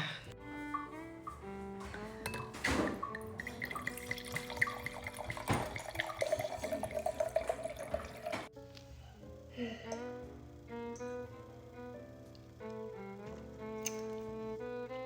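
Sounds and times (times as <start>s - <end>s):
background music: 0.0s - 15.0s
liquid pouring into a glass: 2.3s - 8.5s.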